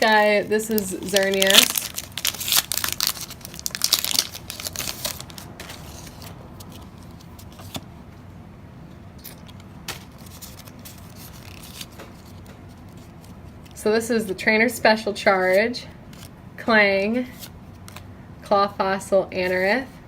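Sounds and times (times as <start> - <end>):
foil pack crinkling and tearing: 0.6 - 6.9, 9.2 - 12.4.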